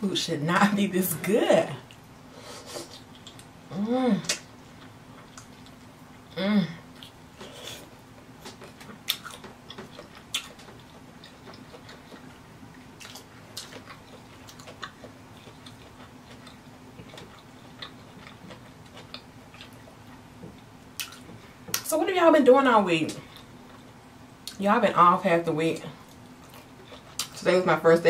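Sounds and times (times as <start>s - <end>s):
faint steady hum: 0.0s - 28.0s
wet chewing mouth sounds: 6.9s - 21.9s, 26.0s - 27.4s.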